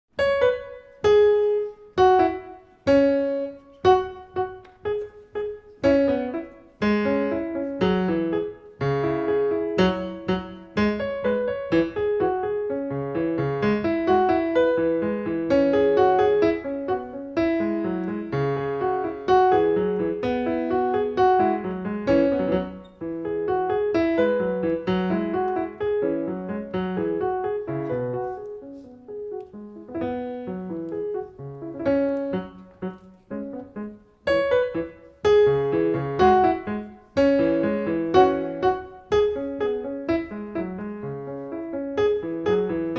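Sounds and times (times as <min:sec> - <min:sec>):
piano music: 0:00.1 - 0:42.9.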